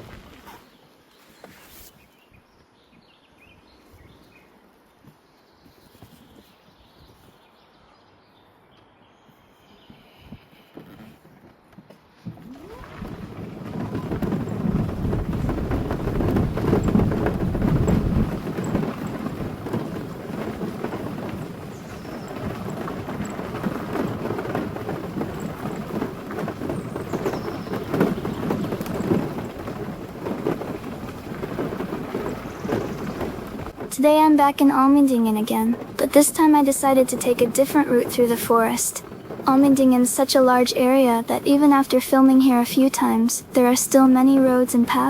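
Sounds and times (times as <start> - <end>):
car driving on gravel road: 0.0 - 0.8, 12.0 - 45.0.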